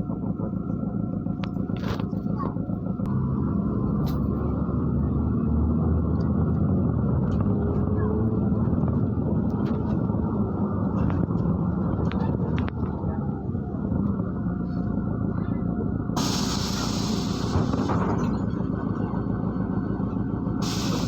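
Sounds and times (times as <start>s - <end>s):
bus engine and road noise: 0.0s - 21.0s
body clicks and rattles: 8.7s - 13.0s.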